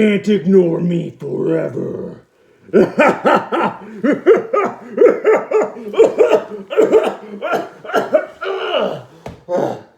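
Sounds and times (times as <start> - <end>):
man laughing: 2.7 - 9.0.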